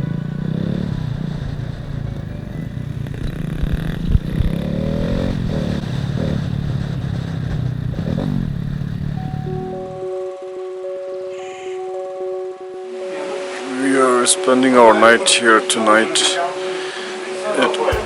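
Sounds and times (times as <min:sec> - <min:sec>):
motorcycle engine revving: 0:00.0 - 0:10.1.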